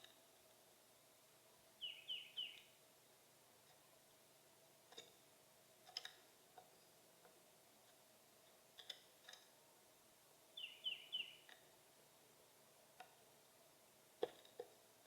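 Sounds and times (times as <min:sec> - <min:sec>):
faint steady hum: 0:00.0 - 0:15.0
small birds calling: 0:01.8 - 0:02.8, 0:10.5 - 0:11.7.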